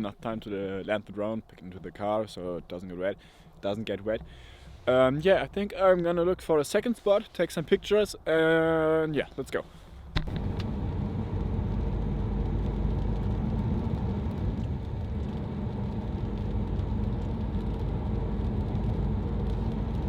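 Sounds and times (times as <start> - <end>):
car interior road rumble: 10.1 - 20.0.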